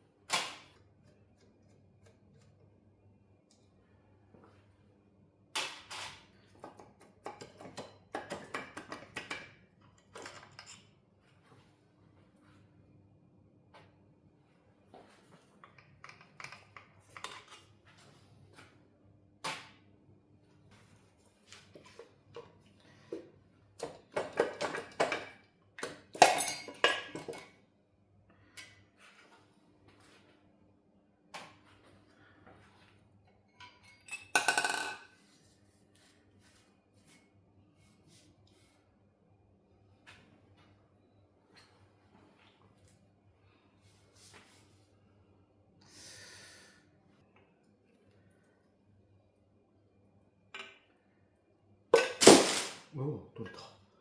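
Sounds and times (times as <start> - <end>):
metal tools clinking and knocking: 33.5 - 35.0.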